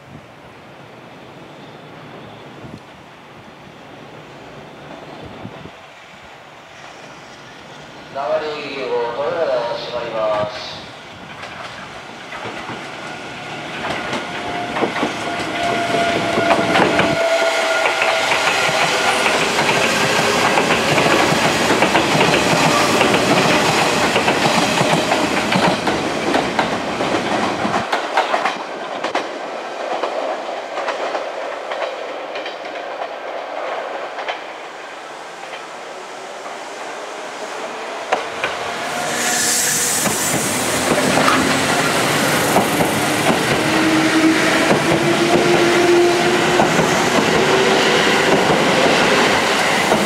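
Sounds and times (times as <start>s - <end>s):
train wheels clacking over rail joints: 11.2s - 34.7s, 38.1s - 50.0s.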